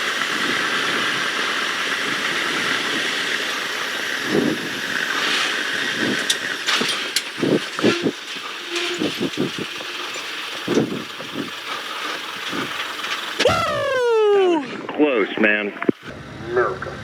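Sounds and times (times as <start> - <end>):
aircraft engine at reduced power: 0.0 - 7.9, 16.1 - 17.0
wind rush: 4.2 - 6.3.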